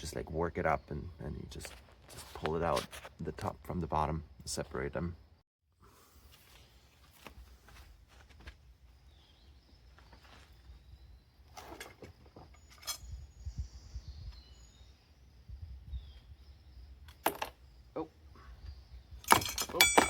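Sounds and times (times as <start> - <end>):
faint bird chirps: 9.0 - 19.3
metal parts clinking: 12.6 - 13.1, 19.2 - 20.0.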